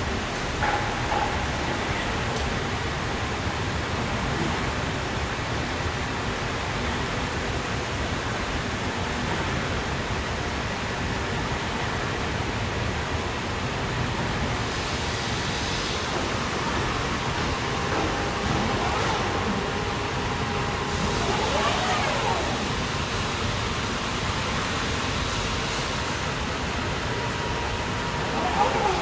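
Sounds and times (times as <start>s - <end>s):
machinery rushing noise: 15.4s - 29.0s.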